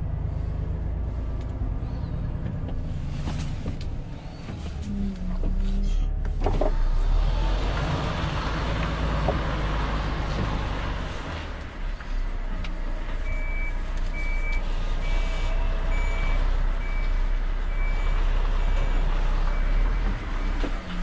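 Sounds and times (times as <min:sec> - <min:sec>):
diesel engine rumble: 0:00.0 - 0:21.0
truck reversing alarm beeping: 0:13.2 - 0:21.0.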